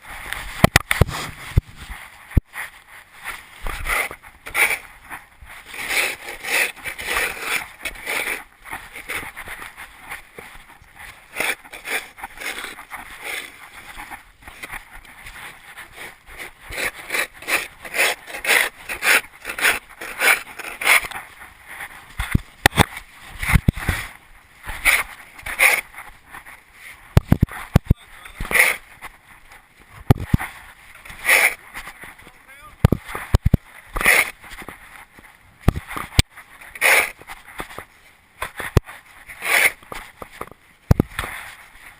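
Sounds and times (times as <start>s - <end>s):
toy truck rushing and rattling: 36.7s - 37.2s.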